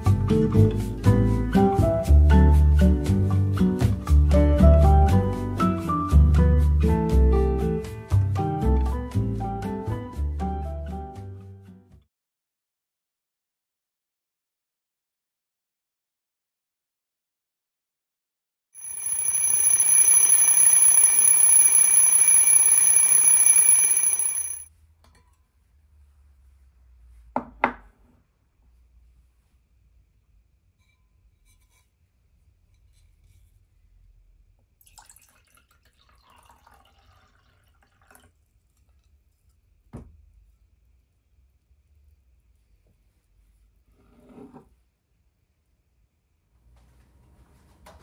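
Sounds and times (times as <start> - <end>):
alarm clock ringing: 18.8 - 24.7
water pouring: 34.8 - 38.5.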